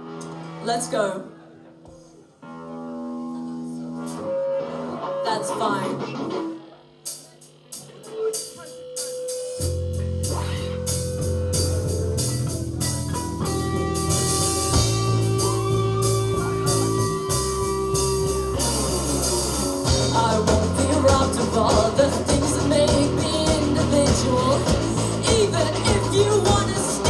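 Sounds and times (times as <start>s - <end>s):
rock band playing: 7.1s - 27.0s.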